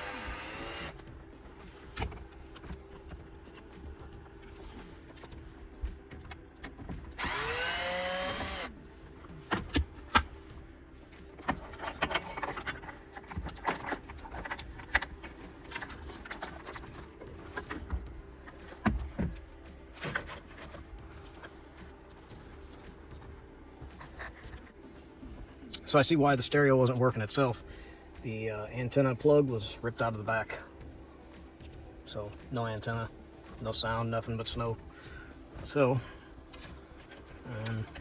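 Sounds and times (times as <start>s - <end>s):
power drill whining: 0.0s - 1.0s, 7.2s - 8.7s.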